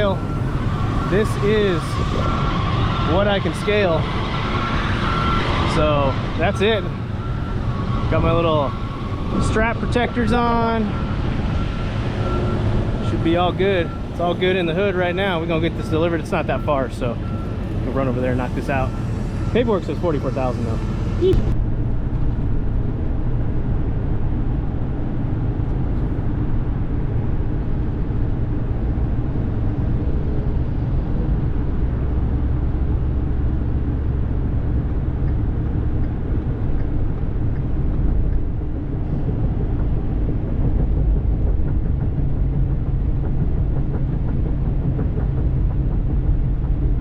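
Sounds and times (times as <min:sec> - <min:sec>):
truck engine and road rumble: 0:00.0 - 0:47.0.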